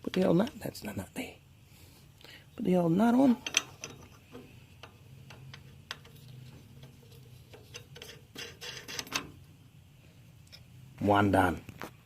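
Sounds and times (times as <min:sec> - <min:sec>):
metallic clicks and rattles: 0:03.3 - 0:09.5.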